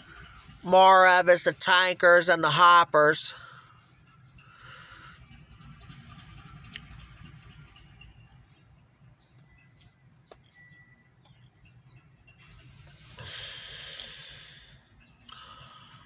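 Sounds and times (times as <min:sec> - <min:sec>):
low steady rumble: 0:00.0 - 0:16.0
faint bird chirps: 0:03.6 - 0:16.0.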